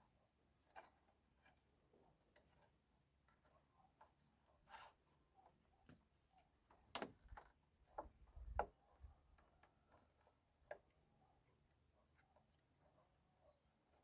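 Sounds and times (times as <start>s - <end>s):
faint knocks and clicks: 5.5s - 11.0s.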